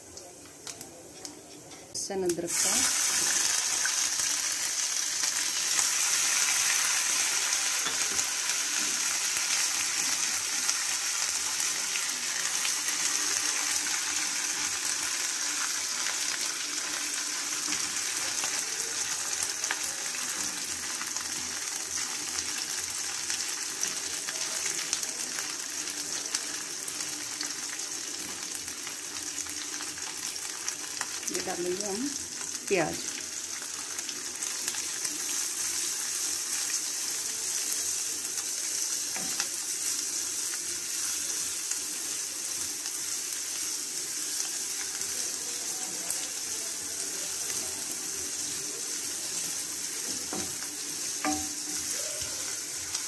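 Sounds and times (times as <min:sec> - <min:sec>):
spices sizzling in hot oil: 0:00.0 - 0:53.0
spatula scraping and tapping pan: 0:50.1 - 0:51.9.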